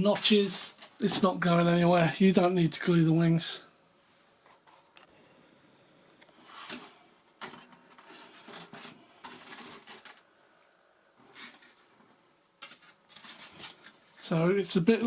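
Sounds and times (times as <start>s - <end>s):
plastic parts scraping and clicking: 6.5s - 10.3s.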